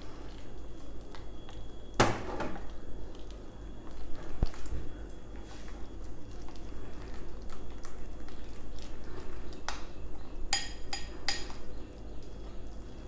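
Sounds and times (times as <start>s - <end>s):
utensil clinking against bowl: 10.5s - 11.6s.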